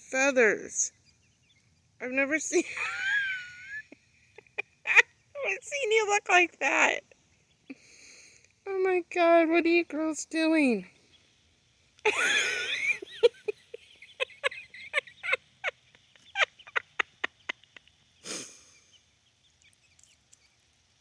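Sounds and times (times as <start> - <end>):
hen squawking: 12.1 - 19.0
hen clucking: 12.4 - 20.7.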